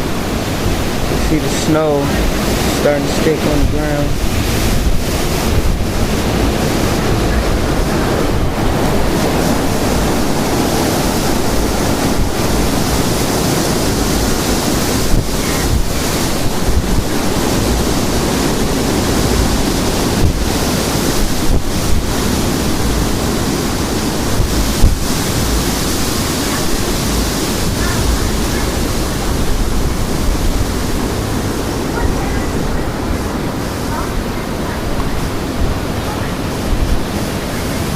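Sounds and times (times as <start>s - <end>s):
high winds buffeting microphone: 0.0s - 37.9s.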